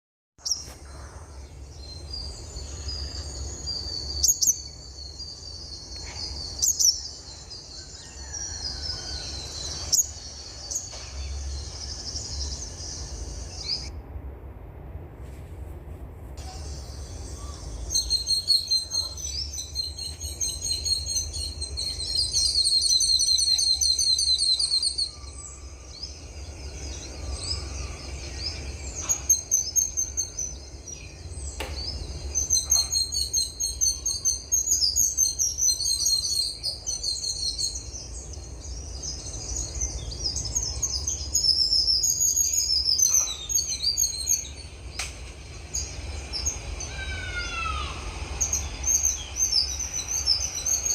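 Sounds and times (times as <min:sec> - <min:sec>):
songbirds chirping and singing: 0:00.4 - 0:13.9, 0:16.4 - 0:50.9
low rumble: 0:08.7 - 0:18.3
bird trills: 0:39.1 - 0:44.6.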